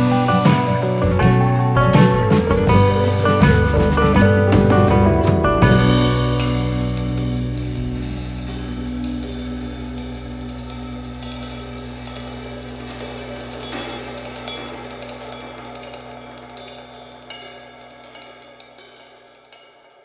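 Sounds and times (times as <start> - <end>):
sustained low music tones: 0.0 - 18.0
cymbal strikes: 5.7 - 20.0.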